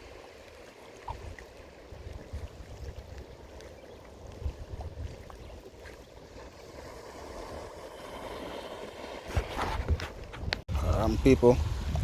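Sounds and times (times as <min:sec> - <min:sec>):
sea water washing on shore: 0:00.0 - 0:09.6
wind rumbling on microphone: 0:00.0 - 0:12.0.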